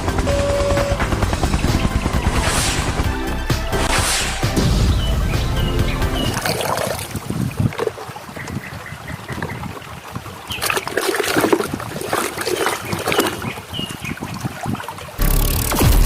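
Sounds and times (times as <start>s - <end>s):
water splashing and trickling: 3.6s - 16.0s.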